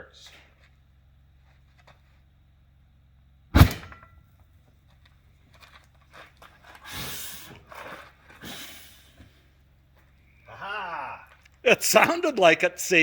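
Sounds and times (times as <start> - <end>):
tire bead bang: 3.3 - 4.7
rustling and hissing: 6.1 - 9.6.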